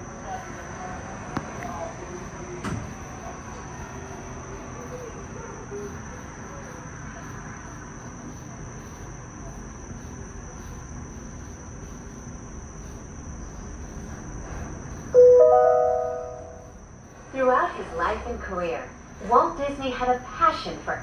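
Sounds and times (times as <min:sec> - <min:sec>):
gondola cabin rumble and hiss: 0:11.7 - 0:21.0
high-pitched whine: 0:15.1 - 0:17.2.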